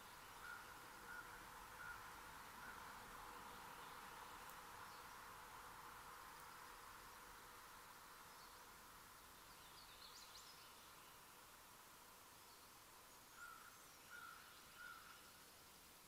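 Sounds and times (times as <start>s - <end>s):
wild birds calling: 0.0s - 5.3s, 12.6s - 15.4s
microphone hiss: 0.0s - 16.0s.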